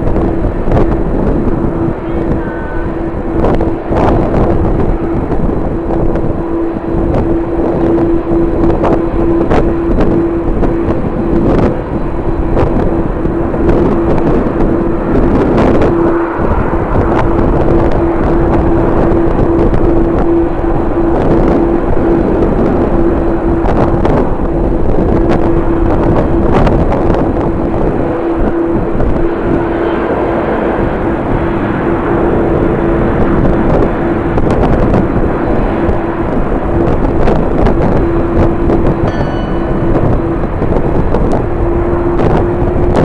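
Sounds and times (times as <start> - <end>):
steady droning hum: 0.0 - 43.0
wind buffeting microphone: 0.0 - 43.0.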